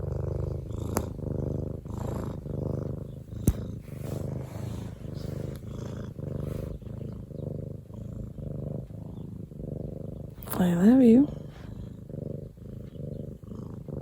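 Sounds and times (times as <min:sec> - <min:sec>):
cat purring: 0:00.0 - 0:14.0
sharp click: 0:03.4 - 0:03.7.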